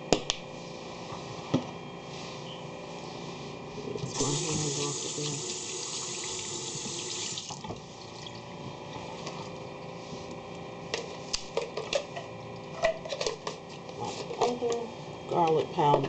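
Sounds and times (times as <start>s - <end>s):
kitchen tap running: 4.0s - 8.4s.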